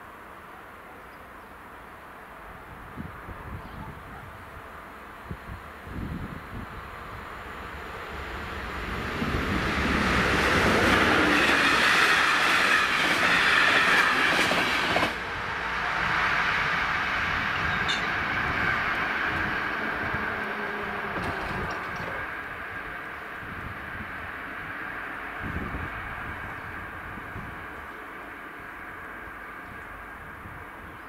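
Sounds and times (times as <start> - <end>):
train wheels clattering over rails: 9.0 - 15.2, 17.6 - 22.4.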